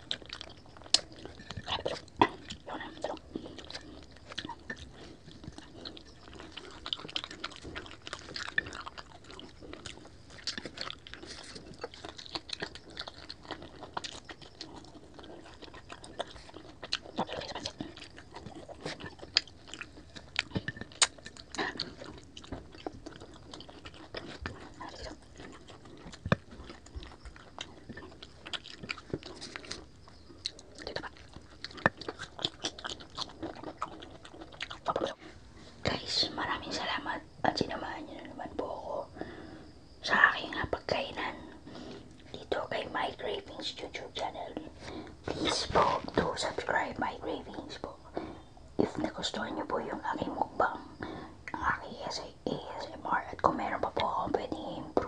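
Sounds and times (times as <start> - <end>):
crunchy chewing: 0.0 - 55.0.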